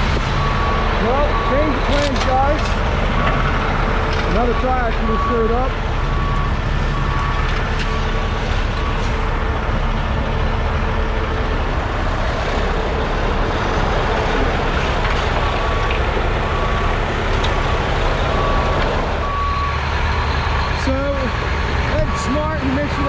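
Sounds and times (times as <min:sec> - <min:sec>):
diesel truck engine running: 0:00.0 - 0:23.0
backup alarm beeping: 0:00.3 - 0:02.5, 0:04.3 - 0:08.1, 0:15.6 - 0:19.9.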